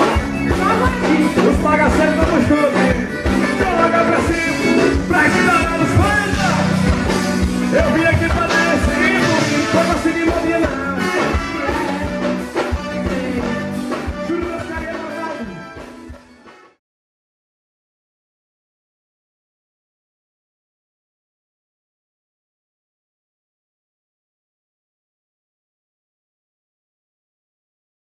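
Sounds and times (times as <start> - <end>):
person singing: 0.0 - 15.8
live band music: 0.0 - 16.8.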